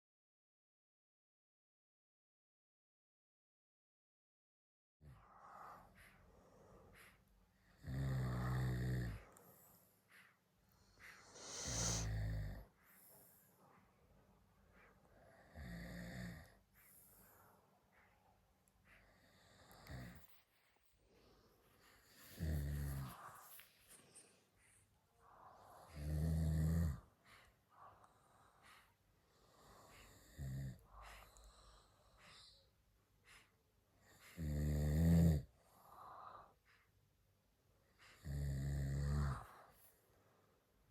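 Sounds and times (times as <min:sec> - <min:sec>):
quiet breathing: 0:05.0 - 0:40.9
dog snoring: 0:06.9 - 0:10.2, 0:10.8 - 0:13.4, 0:14.8 - 0:18.0, 0:18.9 - 0:20.3, 0:21.9 - 0:23.6, 0:25.3 - 0:32.7, 0:34.0 - 0:36.6, 0:38.0 - 0:39.9
loud snores: 0:07.8 - 0:09.2, 0:11.1 - 0:12.6, 0:15.5 - 0:16.6, 0:22.3 - 0:23.2, 0:25.8 - 0:27.1, 0:29.6 - 0:30.8, 0:34.4 - 0:35.5, 0:38.2 - 0:39.6.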